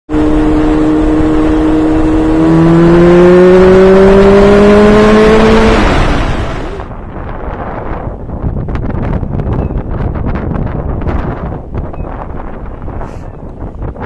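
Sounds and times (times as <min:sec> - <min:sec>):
motorcycle engine accelerating: 0:00.1 - 0:08.0
wind rush: 0:00.1 - 0:14.0.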